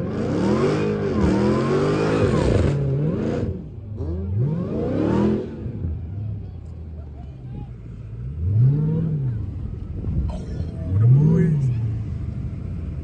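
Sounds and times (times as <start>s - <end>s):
car engine revving hard: 0.0s - 5.8s.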